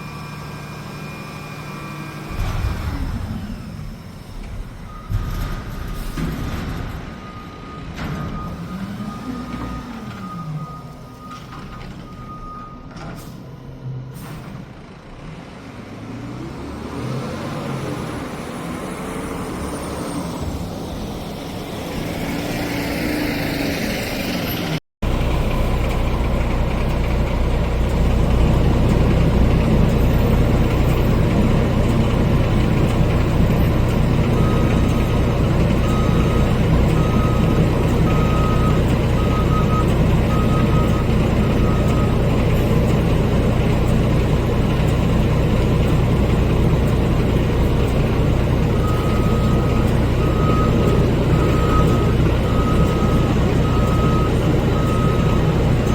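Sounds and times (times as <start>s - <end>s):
reversing beeps: 4.9s - 5.7s, 7.1s - 13.4s, 33.1s - 42.4s, 48.8s - 55.9s
garbage truck engine revving: 14.8s - 55.9s
truck engine running steadily: 25.0s - 55.9s.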